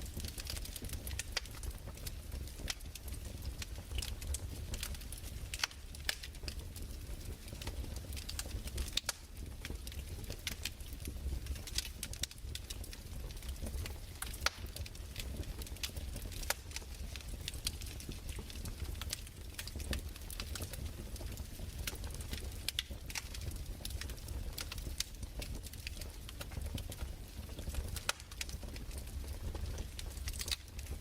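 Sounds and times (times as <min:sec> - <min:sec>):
burning wood crackling: 0:00.0 - 0:31.0
low fire rumble: 0:00.0 - 0:31.0.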